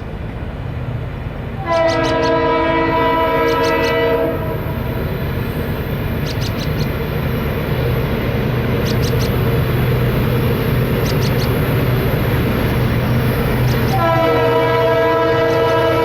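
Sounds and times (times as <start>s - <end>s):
freight train rumbling past: 0.0s - 16.0s
wheels clicking over rail joint: 6.0s - 7.2s, 8.7s - 14.2s.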